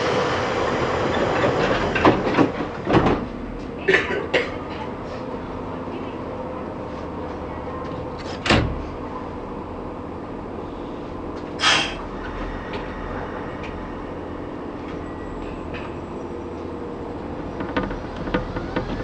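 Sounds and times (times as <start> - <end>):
train equipment humming: 0.0 - 19.0
short air hiss: 11.6 - 12.0.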